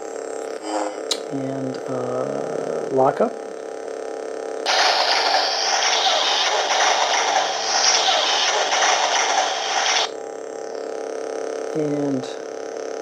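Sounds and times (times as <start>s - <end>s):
lightsaber blade hum: 4.7s - 10.1s
toy lightsaber harsh sizzling: 4.7s - 10.1s.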